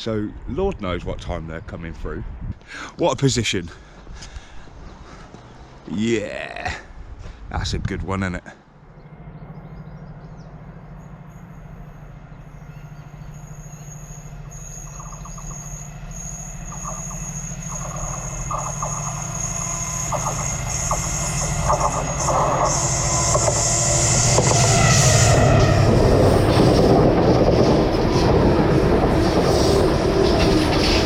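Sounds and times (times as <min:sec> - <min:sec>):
diesel locomotive engine: 0:00.0 - 0:31.0
high thin ringing tone: 0:08.9 - 0:25.4.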